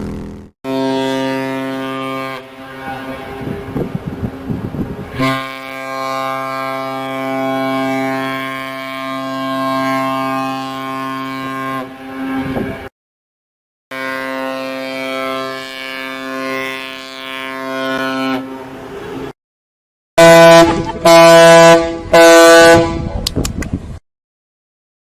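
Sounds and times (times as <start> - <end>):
long horn blast: 0.6 - 12.9, 13.9 - 19.4, 20.2 - 23.2
short horn honks: 0.7 - 3.0, 5.1 - 12.8, 20.2 - 23.2.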